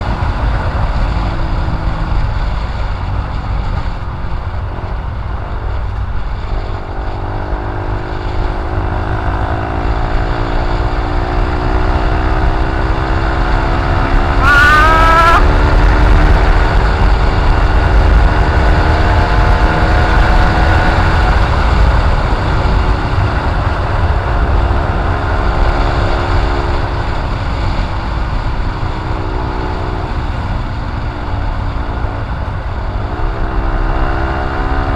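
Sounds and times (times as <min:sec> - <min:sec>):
motorcycle engine rumble: 0:00.0 - 0:34.9
brief high chirp: 0:14.4 - 0:15.4.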